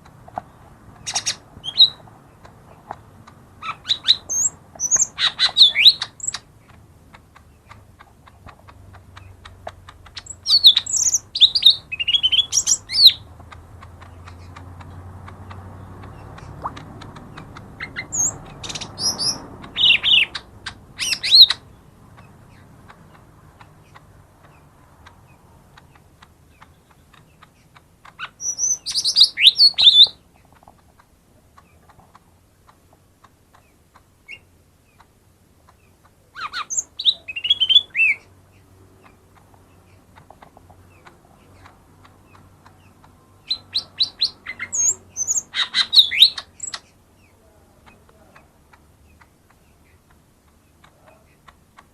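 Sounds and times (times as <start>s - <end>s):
bird singing whistled notes: 1.1s - 2.0s, 3.6s - 6.4s, 10.2s - 13.3s, 17.8s - 21.7s, 28.2s - 30.2s, 36.4s - 38.3s, 43.4s - 46.8s.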